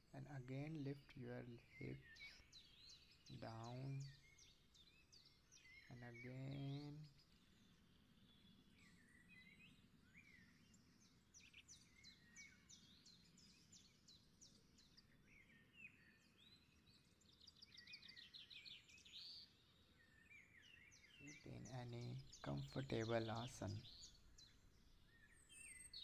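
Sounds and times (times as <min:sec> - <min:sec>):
faint birds chirping: 0:00.0 - 0:26.0.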